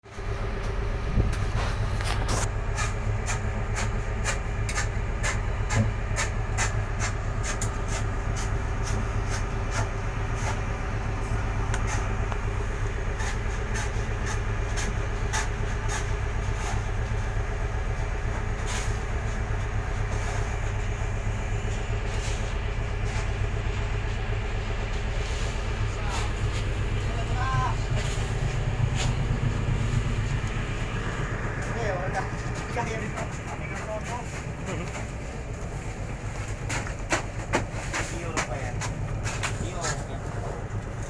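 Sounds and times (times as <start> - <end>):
boat engine droning: 0.0 - 41.0
sharp knocks and clatter: 36.4 - 40.3.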